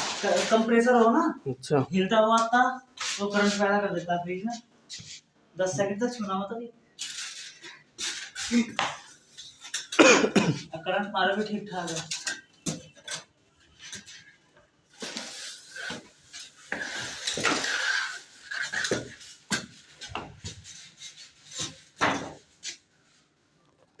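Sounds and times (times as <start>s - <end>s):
rubbing and rustling: 0.0s - 1.2s, 13.6s - 23.6s.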